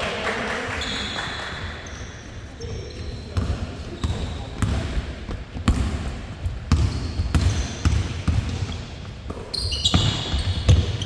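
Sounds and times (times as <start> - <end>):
shoe squeaks on floor: 0.8 - 4.6, 6.8 - 11.0
basketball bouncing on court: 2.7 - 11.0.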